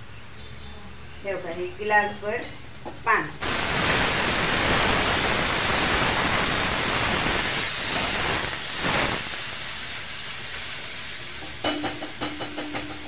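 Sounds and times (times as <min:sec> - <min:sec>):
onion sizzling in hot oil: 0:03.4 - 0:13.0.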